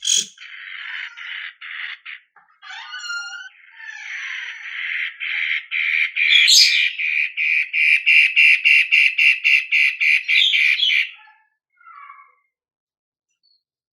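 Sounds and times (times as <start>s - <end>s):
bird calling with scratchy notes: 0.0s - 7.0s.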